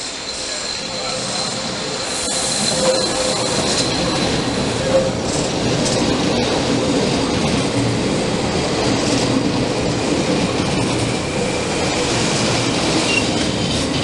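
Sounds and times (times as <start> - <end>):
wheels rumbling on rails: 0.3 - 14.0.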